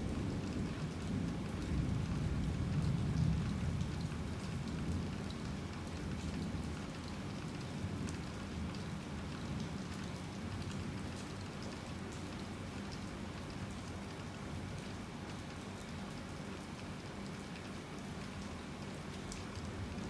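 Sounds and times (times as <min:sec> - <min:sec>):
low rumble of thunder: 0:00.0 - 0:05.2
heavy rain on hard surfaces: 0:00.0 - 0:20.0.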